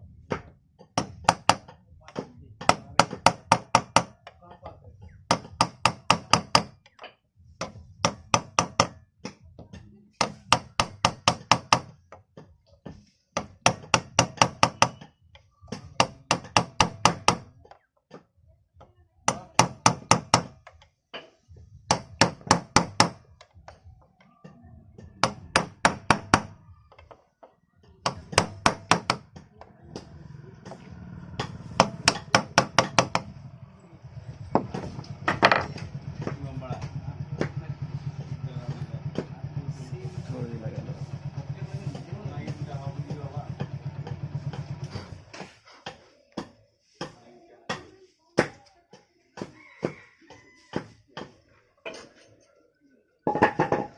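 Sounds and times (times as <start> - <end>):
hammer tapping metal: 0.3 - 4.7, 5.3 - 12.0, 13.4 - 18.2, 19.3 - 23.9, 25.0 - 27.2, 28.0 - 33.4.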